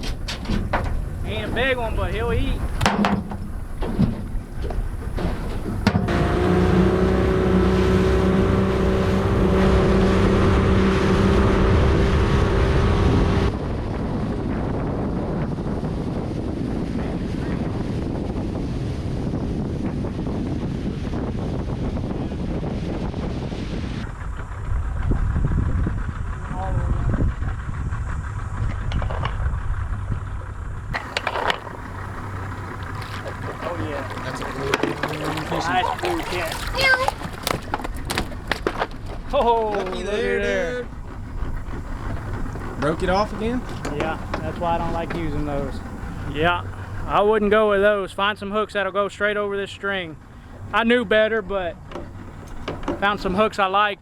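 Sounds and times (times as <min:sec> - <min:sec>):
water noise: 0:00.0 - 0:13.6, 0:31.0 - 0:47.9, 0:52.0 - 0:53.7
outboard motor running: 0:00.0 - 0:14.1, 0:31.0 - 0:48.0, 0:49.9 - 0:53.7
wind on microphone: 0:00.0 - 0:48.0.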